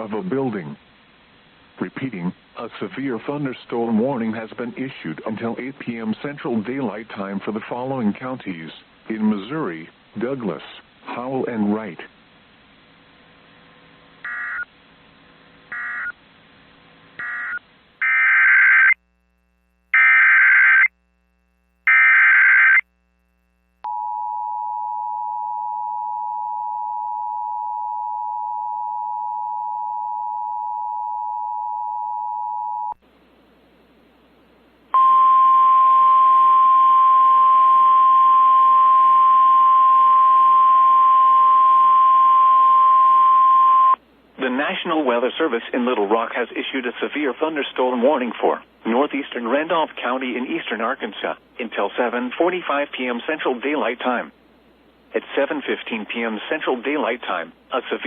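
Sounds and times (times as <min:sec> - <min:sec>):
steady warning alarm tone: 0:14.2 - 0:14.7, 0:15.7 - 0:16.2, 0:17.2 - 0:19.0, 0:20.0 - 0:20.9, 0:21.9 - 0:22.8
short beeps: 0:35.0 - 0:44.0
static: 0:44.4 - 0:58.0.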